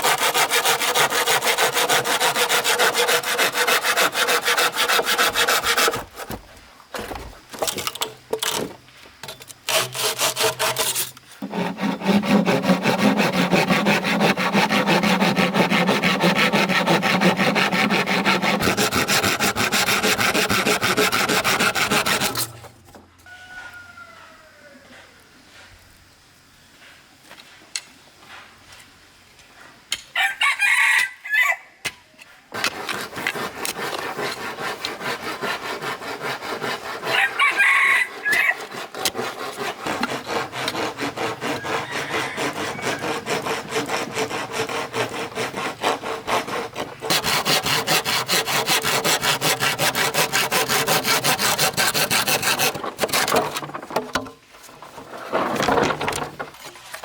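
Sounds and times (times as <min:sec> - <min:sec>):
saw cutting bamboo: 0:00.0 - 0:06.4, 0:09.6 - 0:22.7, 0:32.5 - 0:57.0
rooster crowing: 0:23.2 - 0:25.1, 0:30.2 - 0:31.8, 0:37.1 - 0:38.7, 0:41.5 - 0:43.4.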